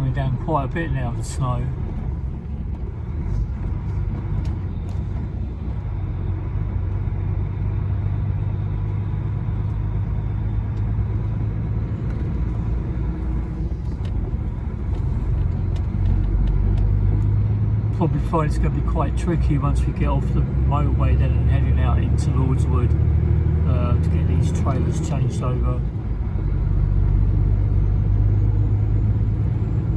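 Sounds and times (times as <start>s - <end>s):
road and tyre noise: 0.0s - 29.9s
truck diesel engine droning: 0.0s - 29.9s.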